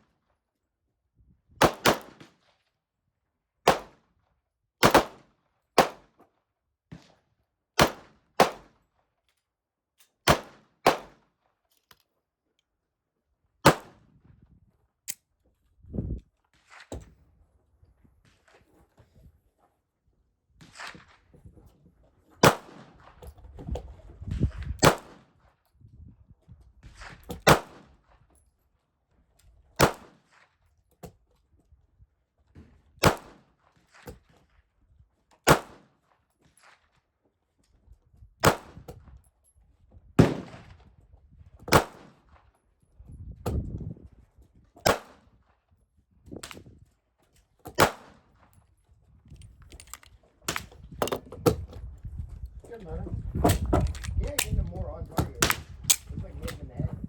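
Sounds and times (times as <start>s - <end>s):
single gunshots: 22.4s - 22.8s, 24.8s - 25.2s, 40.2s - 40.6s, 44.9s - 45.2s.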